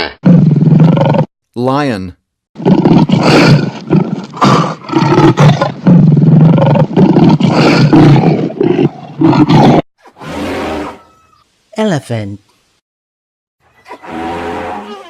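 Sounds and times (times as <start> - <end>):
lion roaring: 2.6 - 11.1.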